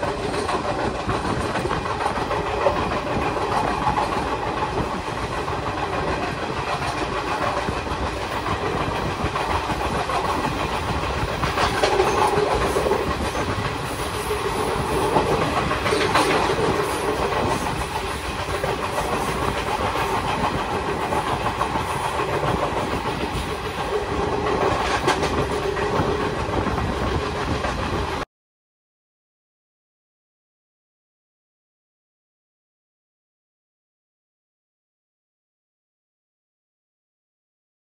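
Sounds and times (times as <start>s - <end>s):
clickety-clack over rail joints: 0.0s - 28.2s
train wheels on rails: 0.0s - 28.3s.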